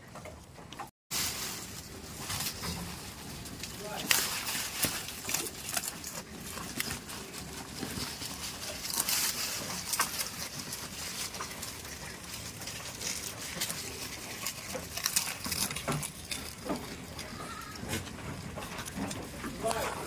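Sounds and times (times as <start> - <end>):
goats moving about: 0.0 - 20.0.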